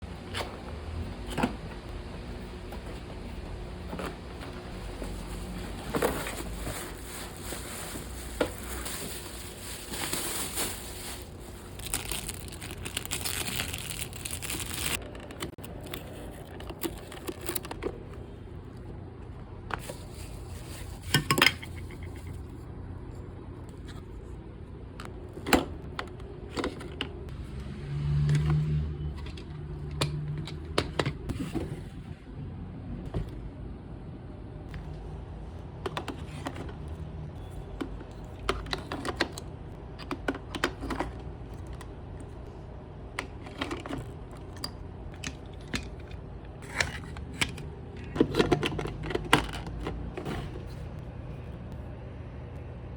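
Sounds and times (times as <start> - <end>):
packaging crinkling and knocks: 5.8 - 15.0.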